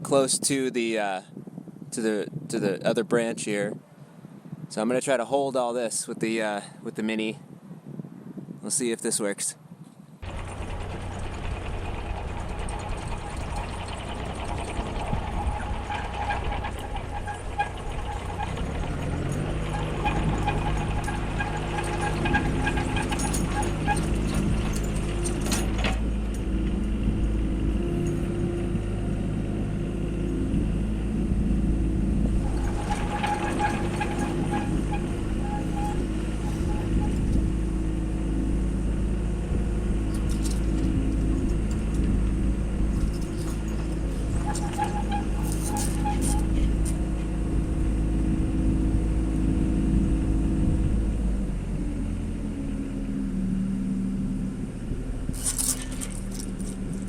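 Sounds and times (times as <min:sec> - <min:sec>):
machine engine running: 0:10.2 - 0:38.0, 0:38.6 - 0:48.0
high-pitched hydraulic whines: 0:32.4 - 0:37.5.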